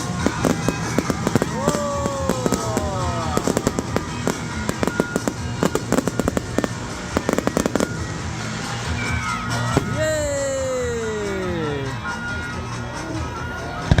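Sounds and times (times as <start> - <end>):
fireworks crackling bangs and pops: 0.0 - 11.7
music playing: 0.0 - 14.0.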